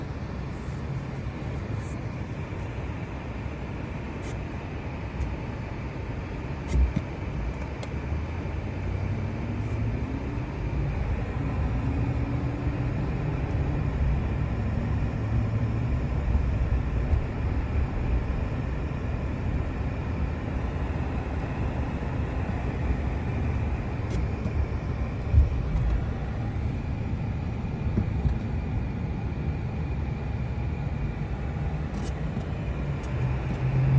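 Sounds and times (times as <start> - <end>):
motor vehicle engine rumbling: 10.4 - 29.8.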